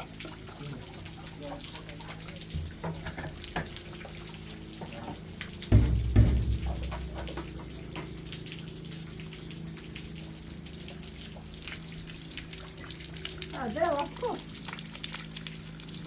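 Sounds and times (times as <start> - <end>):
rain dripping and pattering: 0.0 - 16.0
steady low hum: 5.3 - 14.7
heavy low thuds: 5.7 - 8.2.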